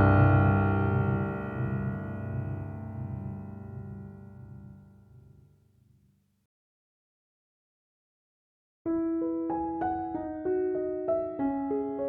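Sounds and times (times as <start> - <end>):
sustained piano chord: 0.0 - 5.4.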